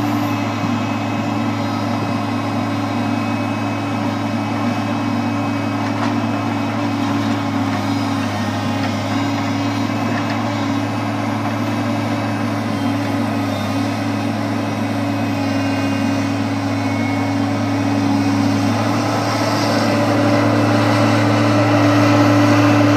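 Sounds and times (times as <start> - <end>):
truck engine humming: 0.0 - 22.9.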